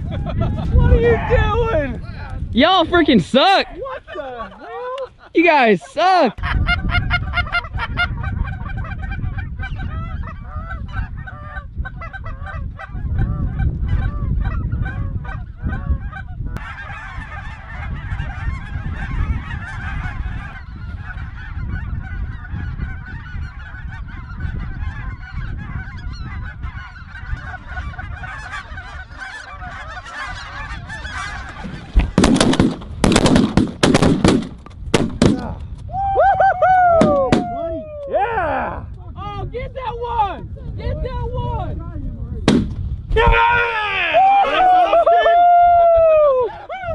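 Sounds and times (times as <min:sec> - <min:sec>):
geese honking: 0:03.1 - 0:32.7
loud bangs: 0:32.0 - 0:35.5, 0:37.0 - 0:37.6, 0:42.4 - 0:43.4.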